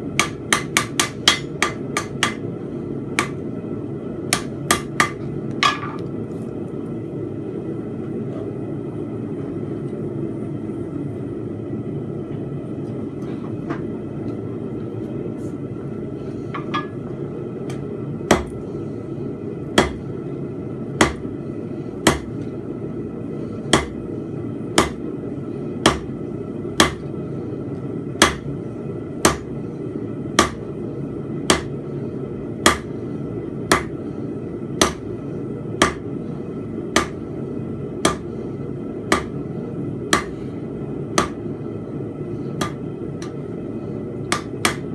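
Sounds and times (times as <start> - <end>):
hammer striking metal on anvil: 0.2 - 2.4, 3.2 - 3.4, 4.3 - 6.0, 19.8 - 20.0, 24.8 - 25.0, 28.2 - 28.4, 30.4 - 30.6, 31.5 - 31.7, 32.6 - 32.9, 33.7 - 33.9, 34.8 - 35.0, 35.8 - 36.0, 37.0 - 37.2, 38.0 - 38.3, 39.1 - 39.4, 40.1 - 40.3, 41.2 - 41.4, 42.6 - 43.4, 44.3 - 44.9.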